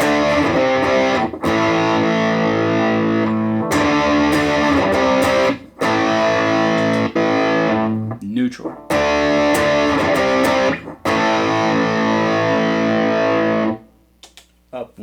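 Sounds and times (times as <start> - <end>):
distorted electric guitar chords: 0.0 - 13.9.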